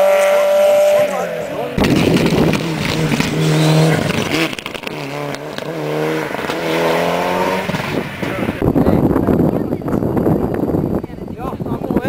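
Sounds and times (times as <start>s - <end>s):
rally car engine accelerating hard: 0.0s - 8.7s.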